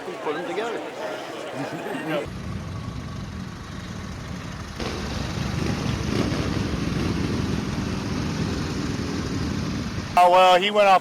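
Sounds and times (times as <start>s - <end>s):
engine rumbling: 2.3s - 10.2s.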